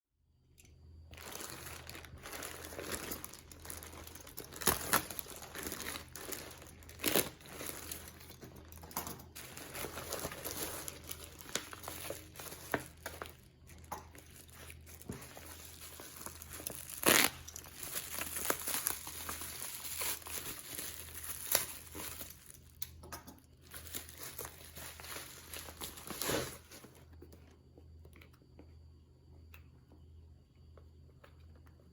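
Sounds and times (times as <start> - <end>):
packaging crinkling and tearing: 1.1 - 22.8, 23.5 - 27.0.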